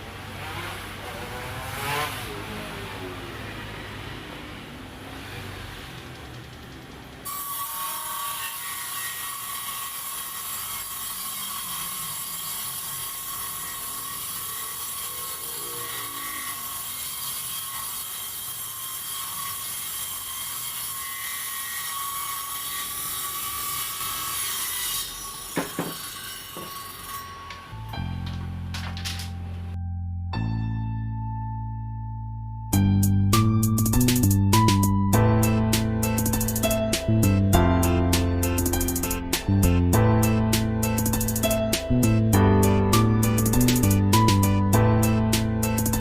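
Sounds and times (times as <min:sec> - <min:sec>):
table saw ripping wood: 0:00.3 - 0:02.4, 0:07.2 - 0:29.8.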